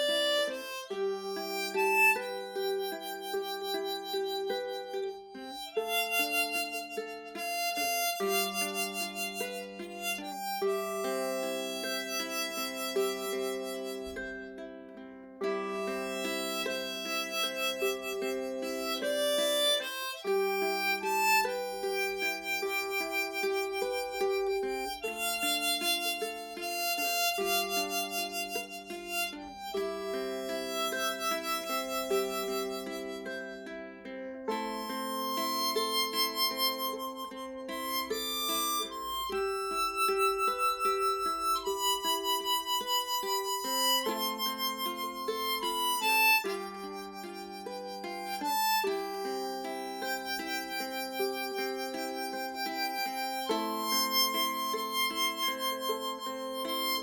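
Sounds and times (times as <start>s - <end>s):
harmonica playing chords: 0.0s - 57.0s
ukulele: 0.0s - 57.0s.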